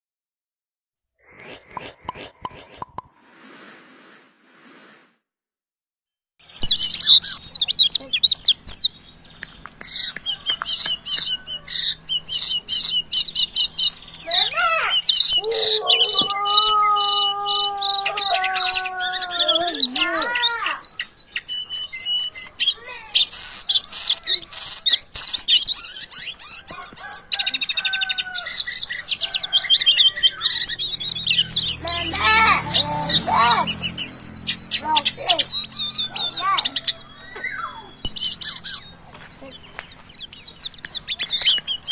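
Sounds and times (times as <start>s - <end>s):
songbirds chirping and trilling: 6.4s - 41.9s
wavering bird call: 9.8s - 39.6s.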